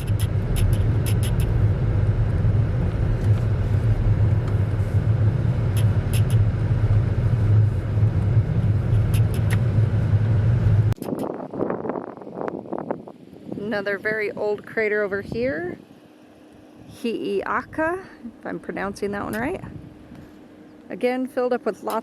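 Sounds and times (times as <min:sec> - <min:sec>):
light clicks: 0:00.0 - 0:01.5, 0:09.0 - 0:09.7
car cabin road rumble: 0:00.0 - 0:22.0.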